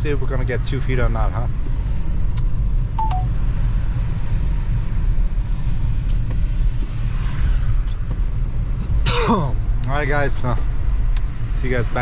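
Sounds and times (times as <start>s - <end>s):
two-note electronic beep: 3.0s - 3.3s.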